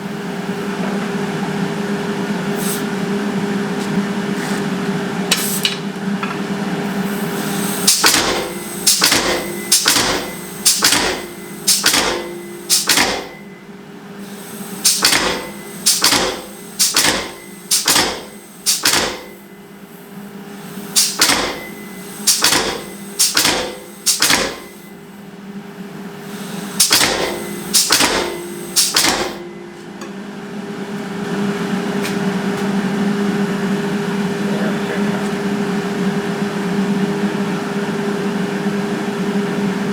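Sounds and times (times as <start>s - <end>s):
hammer striking steel on anvil: 7.9s - 13.6s, 14.9s - 19.3s, 21.0s - 21.7s, 22.3s - 24.8s, 26.8s - 30.4s.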